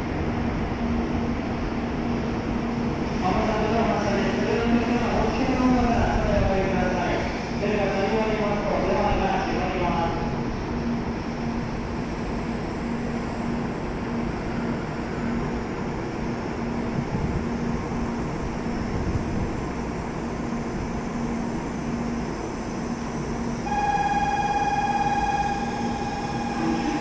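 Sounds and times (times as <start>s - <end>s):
train humming at platform: 0.0s - 27.0s
station noise: 21.3s - 27.0s
steady electronic tone: 23.6s - 27.0s.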